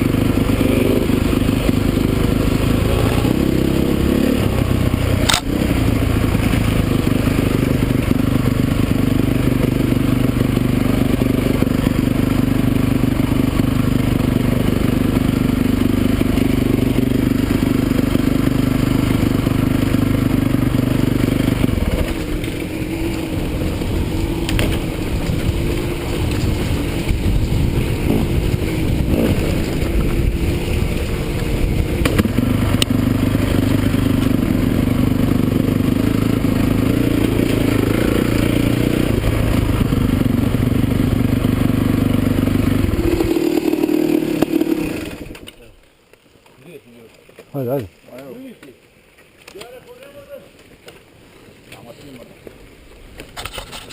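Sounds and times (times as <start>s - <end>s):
motorcycle engines running: 0.0s - 53.9s.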